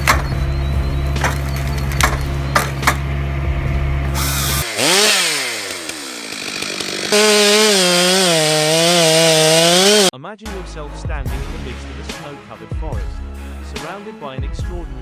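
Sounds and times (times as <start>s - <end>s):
chainsaw revving: 0.0s - 10.1s
machine engine running: 0.0s - 10.1s.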